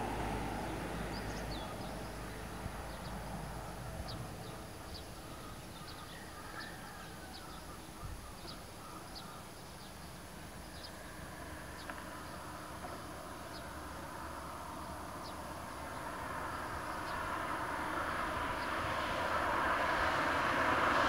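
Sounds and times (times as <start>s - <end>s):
distant road traffic rumble: 0.0s - 21.0s
bird chirping: 0.6s - 13.8s.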